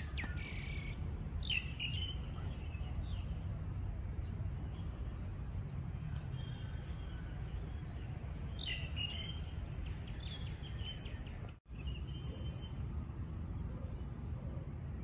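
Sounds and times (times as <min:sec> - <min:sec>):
small birds chirping: 0:00.0 - 0:03.5, 0:04.2 - 0:12.8.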